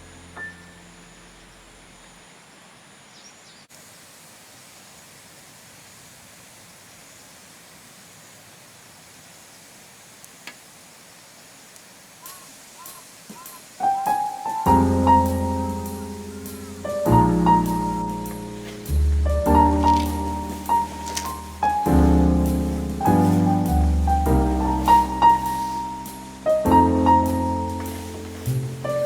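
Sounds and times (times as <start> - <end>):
music: 0.0 - 1.4, 13.8 - 29.0
steady hiss: 0.0 - 29.0.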